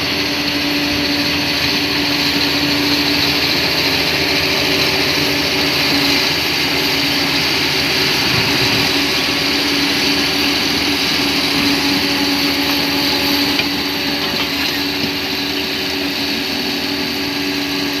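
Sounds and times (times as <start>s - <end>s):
bulldozer diesel engine running: 0.0s - 18.0s.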